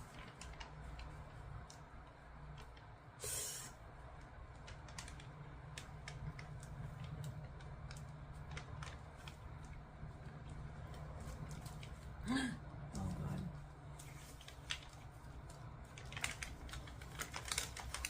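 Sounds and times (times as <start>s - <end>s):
adhesive sheet clicking and crackling: 15.9s - 18.0s.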